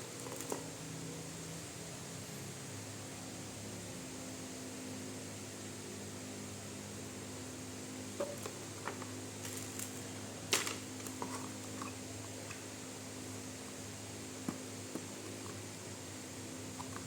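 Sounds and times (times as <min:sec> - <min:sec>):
low electrical hum and hiss: 0:00.0 - 0:17.0.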